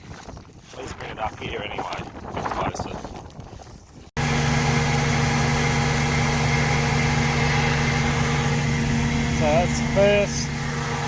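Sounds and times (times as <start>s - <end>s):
wind buffeting microphone: 0.0s - 4.1s
combine harvester engine droning: 4.2s - 11.0s.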